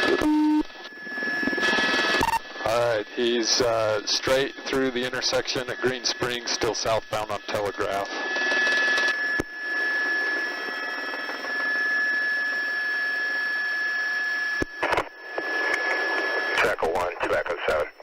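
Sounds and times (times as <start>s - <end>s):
thin steady whine: 0.0s - 18.0s
radio channel hiss: 1.7s - 8.6s, 14.7s - 18.0s.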